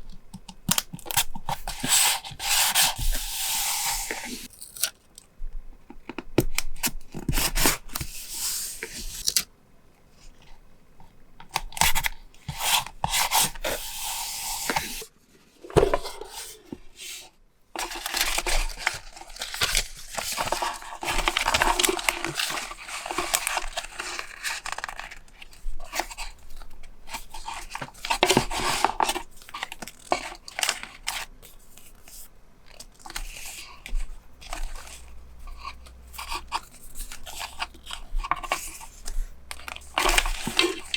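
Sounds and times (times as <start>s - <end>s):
paper tearing and rustling: 39.6s - 40.9s.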